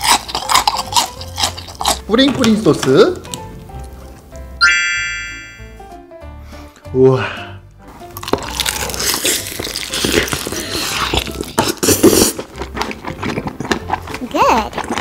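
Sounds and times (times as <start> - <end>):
crunching and wet chewing: 0.0 - 4.2, 8.0 - 15.0.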